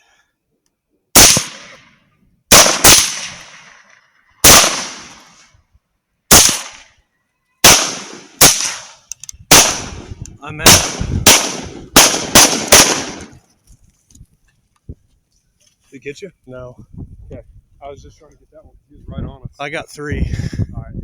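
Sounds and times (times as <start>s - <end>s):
rifle shots echoing: 1.2s - 5.4s, 6.3s - 6.9s, 7.6s - 13.4s.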